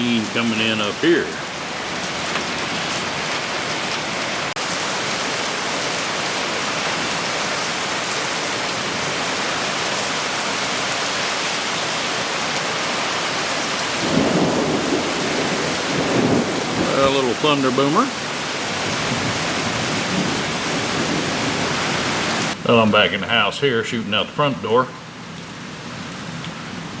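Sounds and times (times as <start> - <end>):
heavy rain falling: 0.0 - 23.4, 24.6 - 27.0
low rumble of thunder: 13.9 - 22.5.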